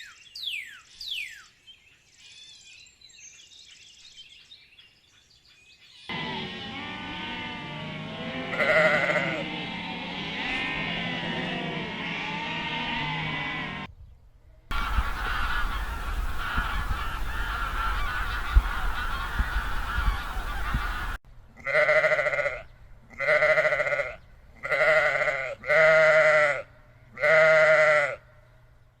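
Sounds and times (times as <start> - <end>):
animal long drawn-out calls: 6.1 - 13.9, 14.7 - 22.6
low wind rumble: 6.1 - 13.9, 14.7 - 21.2
many animals calling: 6.1 - 13.9, 14.7 - 22.1.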